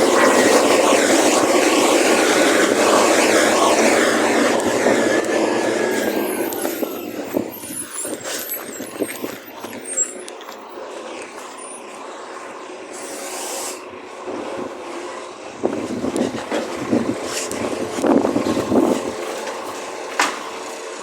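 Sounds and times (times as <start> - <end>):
road vehicle running: 0.0 - 21.0
air hiss: 12.9 - 13.8.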